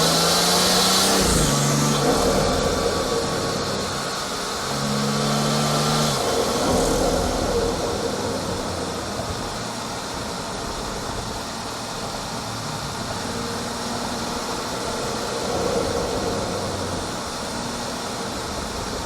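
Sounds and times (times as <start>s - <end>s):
intake air rushing: 0.0s - 9.8s
car engine running: 0.0s - 19.0s.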